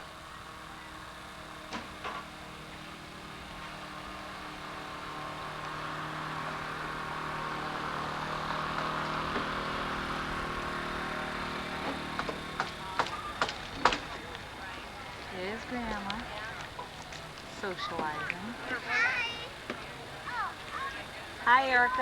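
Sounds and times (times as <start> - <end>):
steady low hum: 0.0 - 22.0
passing vehicle engine: 2.4 - 18.9.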